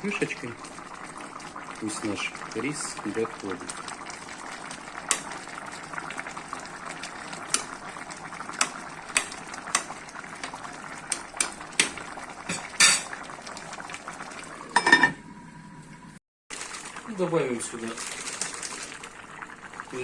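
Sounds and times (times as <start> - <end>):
pot bubbling and hissing: 0.0 - 20.0
metallic clicks of pot and lid: 8.6 - 9.9.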